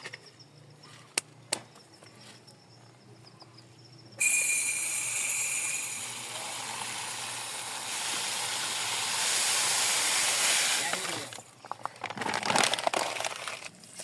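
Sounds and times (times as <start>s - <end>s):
cooking pot sizzling: 4.2s - 11.4s.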